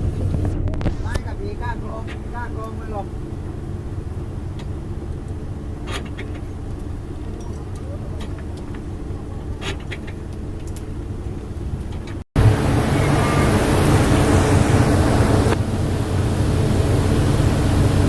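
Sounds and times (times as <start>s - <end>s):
boat engine running: 0.0s - 18.0s
waves: 0.0s - 18.0s
wind: 0.0s - 18.0s.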